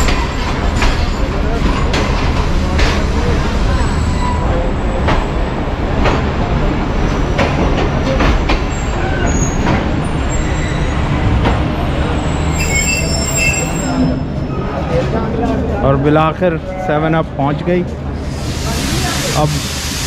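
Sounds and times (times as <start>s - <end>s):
train rumbling: 0.0s - 20.0s
brakes squealing: 8.7s - 15.0s.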